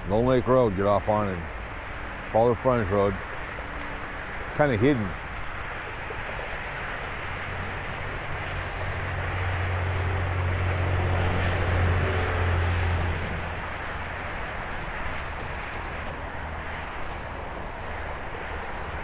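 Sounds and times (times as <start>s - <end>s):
distant traffic noise: 0.0s - 19.0s
passing vehicle engine drone: 6.0s - 19.0s.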